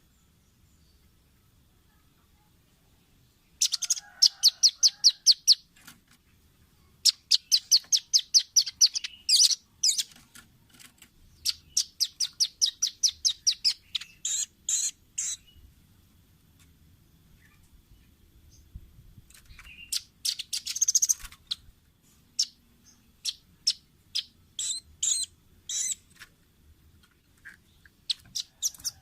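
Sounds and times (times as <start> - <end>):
nuthatch trilling: 3.6 - 5.7, 7.0 - 10.2, 11.4 - 15.6, 19.6 - 21.6, 23.2 - 26.1, 27.5 - 29.0.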